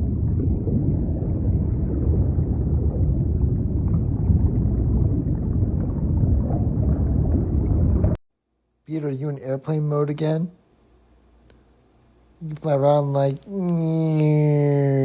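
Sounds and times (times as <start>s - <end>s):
faint gurgling: 0.0s - 8.2s, 13.3s - 15.0s
underwater low rumble: 0.0s - 8.2s.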